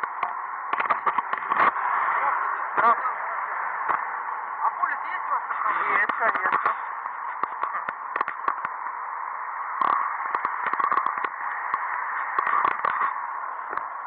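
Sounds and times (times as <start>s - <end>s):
sharp clicks and crackles: 0.0s - 1.9s, 3.8s - 4.1s, 6.0s - 9.0s, 9.7s - 14.0s
static hiss: 0.0s - 14.0s.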